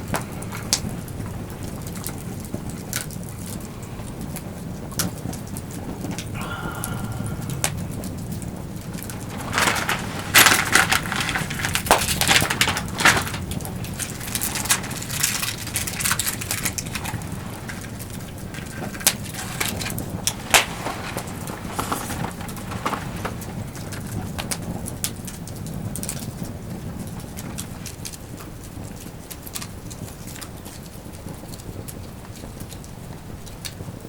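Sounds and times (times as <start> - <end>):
low steady rush of fire: 0.0 - 34.0
wood fire crackling and popping: 0.0 - 34.0.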